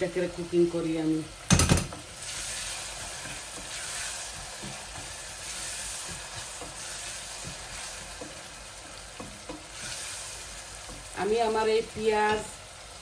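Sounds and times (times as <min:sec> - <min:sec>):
onions sizzling in pans: 0:00.0 - 0:13.0.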